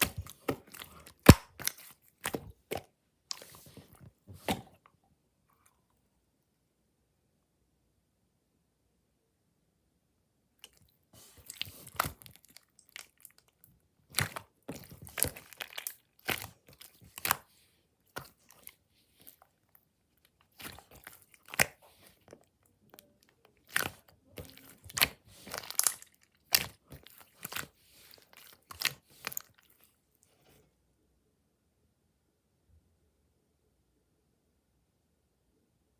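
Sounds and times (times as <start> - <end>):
slime clicking and crackling: 0.0 - 1.9, 23.6 - 29.6.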